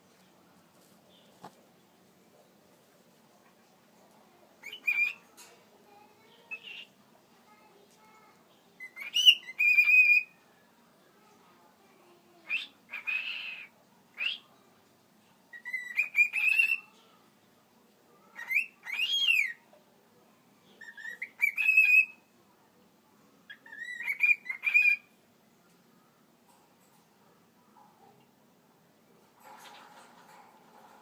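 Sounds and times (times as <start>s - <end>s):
harsh bird chirp: 4.6s - 5.2s, 8.8s - 10.4s, 15.5s - 16.9s, 20.7s - 22.2s, 23.5s - 25.1s.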